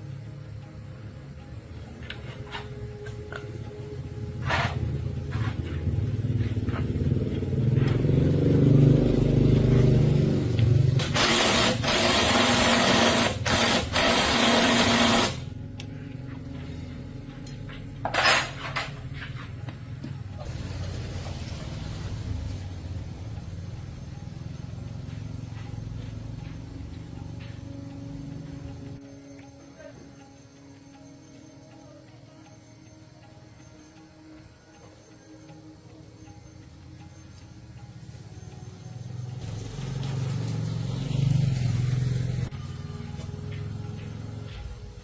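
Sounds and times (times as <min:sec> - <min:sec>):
motorcycle engine running: 0:01.7 - 0:29.0, 0:36.9 - 0:45.0.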